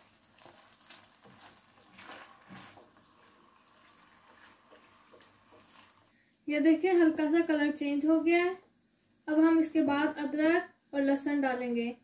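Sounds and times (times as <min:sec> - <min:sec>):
chicken frying in oil: 0:00.0 - 0:06.1
spatula scraping pan: 0:00.0 - 0:06.1.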